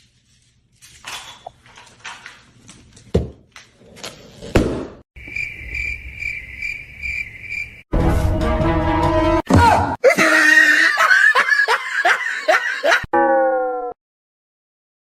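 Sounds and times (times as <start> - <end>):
high-pitched pulsing chirping: 5.2 - 7.8
music: 7.9 - 9.5.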